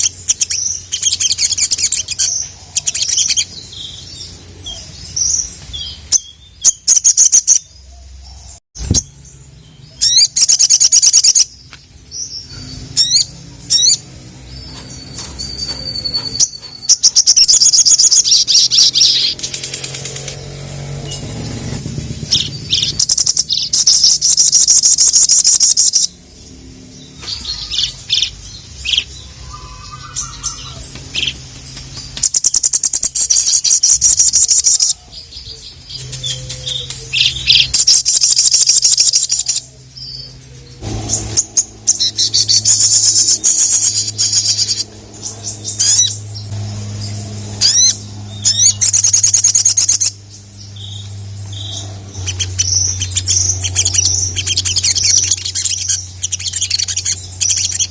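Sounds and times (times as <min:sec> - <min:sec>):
steady low hum: 0:11.4 - 0:57.9
songbird fast high trills: 0:40.8 - 0:57.9.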